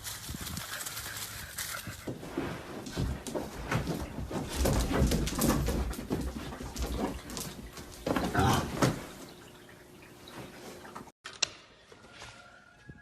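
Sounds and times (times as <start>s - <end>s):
knocks and scuffling: 0.0s - 9.6s.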